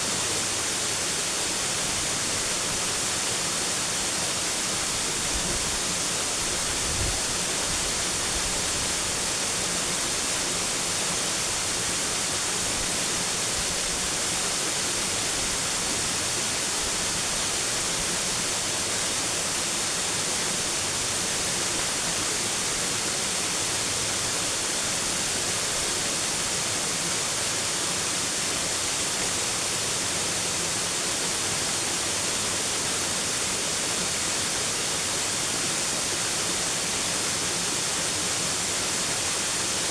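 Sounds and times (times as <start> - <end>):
falling water rushing: 0.0 - 39.9.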